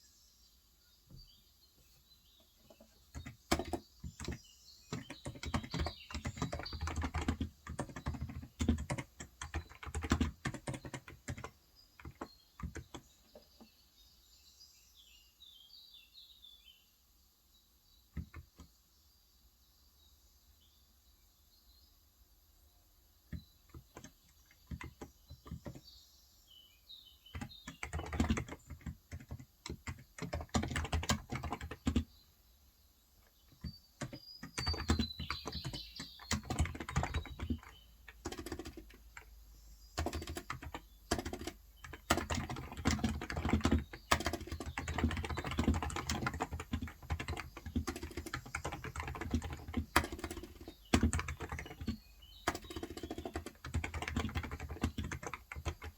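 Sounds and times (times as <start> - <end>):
typing on a keyboard: 2.8 - 13.5, 18.2 - 18.7, 23.3 - 25.9, 27.3 - 32.1, 33.5 - 55.9.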